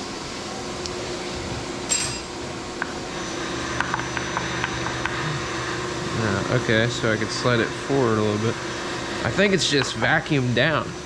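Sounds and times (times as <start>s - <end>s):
machine hum: 0.0s - 11.0s
metallic clink: 1.9s - 2.4s.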